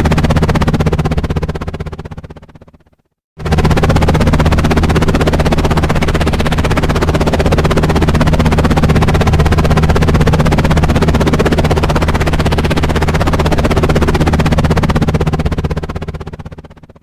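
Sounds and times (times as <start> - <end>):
helicopter rotor chopping: 0.0 - 17.0.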